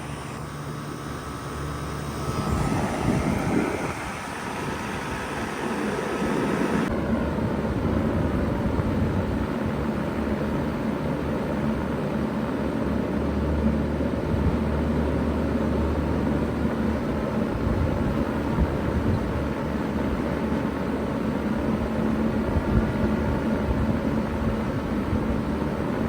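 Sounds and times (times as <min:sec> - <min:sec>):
low hum: 0:00.0 - 0:08.6
heat pump fan air rushing: 0:00.0 - 0:26.0.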